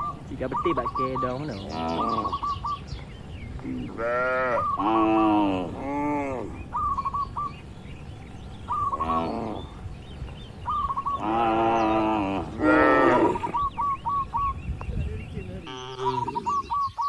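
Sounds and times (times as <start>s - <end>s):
bird chirping: 0.0s - 17.0s
cattle mooing: 3.8s - 6.6s, 8.8s - 9.8s, 11.1s - 13.6s, 15.6s - 16.7s.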